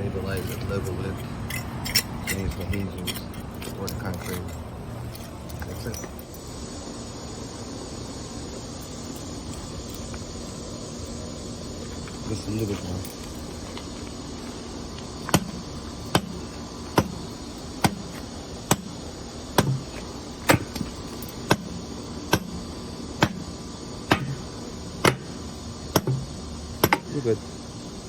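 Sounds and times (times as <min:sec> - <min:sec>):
hand tool knocking: 0:19.6 - 0:21.7, 0:24.1 - 0:27.1.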